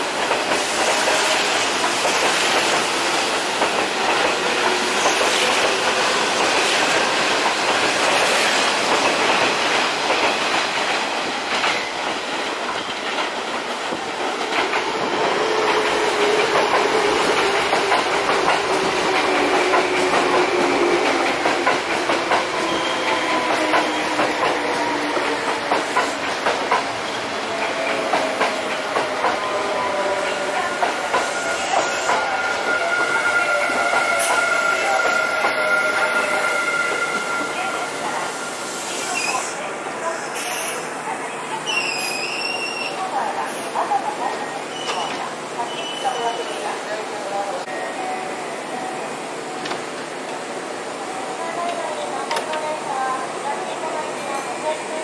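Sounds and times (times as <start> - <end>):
falling tone of slowing train: 0.0 - 43.0, 47.6 - 51.4
train wheels clattering over joints: 0.1 - 32.2.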